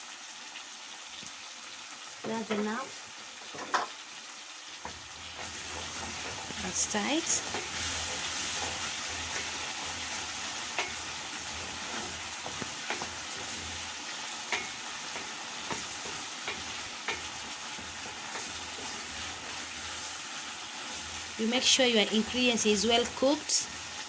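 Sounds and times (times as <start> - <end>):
stew sizzling in a pan: 0.0 - 24.0
spoon knocking against pan: 3.5 - 4.0, 4.8 - 6.6, 7.4 - 19.6.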